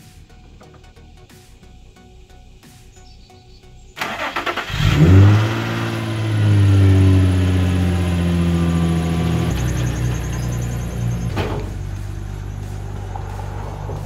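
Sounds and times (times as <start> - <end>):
starter motor cranking: 4.0 - 5.7
car engine revving and idling: 4.0 - 14.0.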